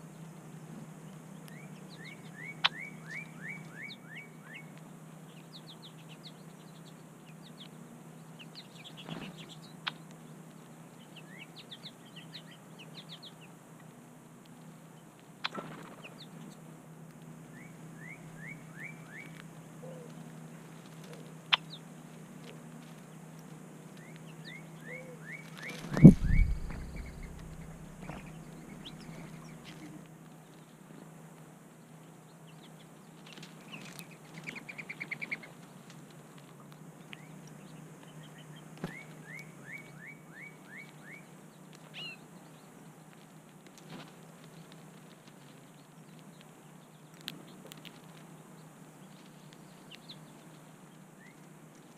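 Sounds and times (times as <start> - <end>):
songbirds calling: 0.0 - 14.0, 14.7 - 31.0, 31.6 - 43.4, 44.3 - 51.9
steady low hum: 0.0 - 40.2
bird rising chirps: 24.5 - 29.6.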